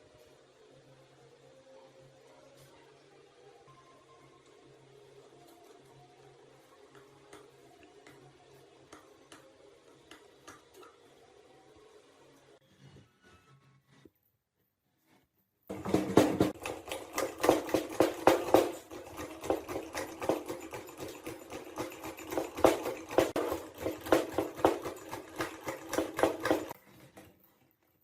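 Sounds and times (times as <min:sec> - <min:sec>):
hand tool striking metal parts: 0:15.7 - 0:26.8.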